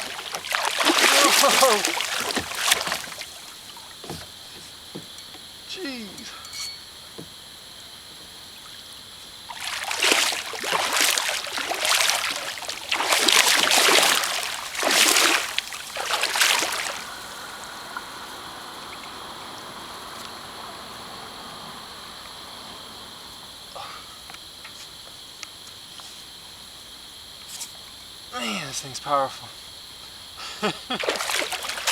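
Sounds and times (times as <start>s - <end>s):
fish thrashing in water: 0.0s - 5.1s, 9.5s - 20.1s, 31.0s - 31.9s.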